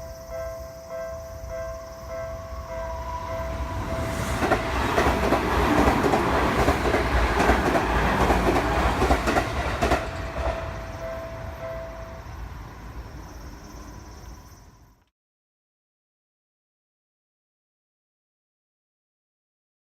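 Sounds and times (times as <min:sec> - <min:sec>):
level crossing warning bell: 0:00.0 - 0:04.2, 0:10.1 - 0:12.6
electric train passing: 0:00.0 - 0:15.0.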